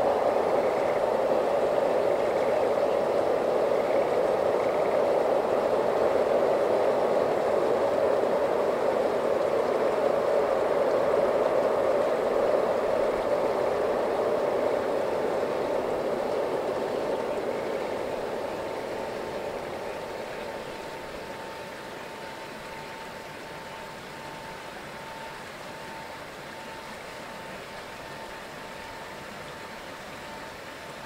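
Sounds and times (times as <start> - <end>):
freight train rumble: 0.0 - 31.0.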